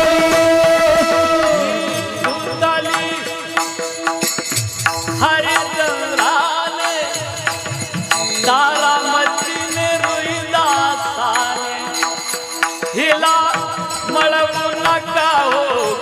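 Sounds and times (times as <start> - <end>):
drum strokes: 0.0 - 15.6
jingling cymbal beats: 0.0 - 16.0.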